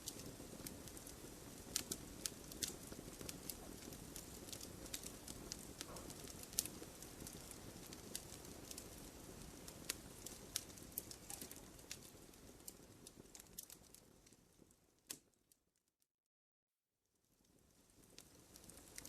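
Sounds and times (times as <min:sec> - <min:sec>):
fire rushing: 0:00.0 - 0:14.0
wood fire crackling and popping: 0:00.0 - 0:15.5, 0:17.3 - 0:19.0.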